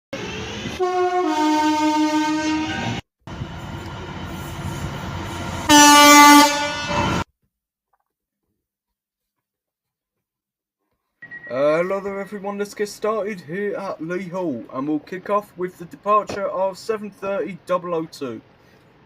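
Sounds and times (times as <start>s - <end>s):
rumble of moving train: 0.2s - 7.2s
single-note train horn blast: 0.7s - 3.0s, 5.6s - 7.2s
two-tone train horn: 0.7s - 3.0s, 5.6s - 7.2s.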